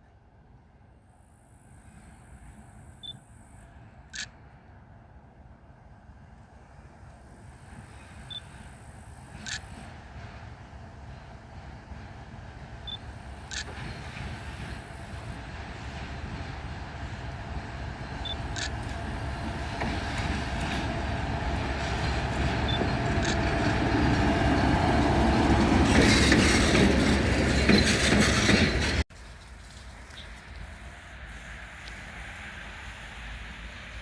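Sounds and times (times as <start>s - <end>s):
freight train rumbling past: 1.2s - 34.0s.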